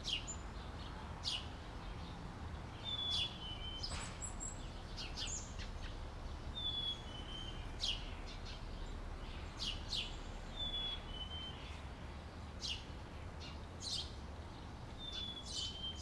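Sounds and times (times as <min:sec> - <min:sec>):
songbirds whistling: 0:02.8 - 0:11.9, 0:15.0 - 0:16.0.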